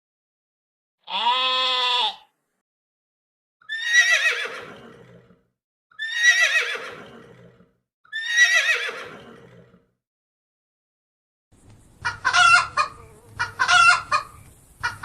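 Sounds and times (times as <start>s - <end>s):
horse neighing: 3.7s - 5.4s, 6.0s - 9.8s.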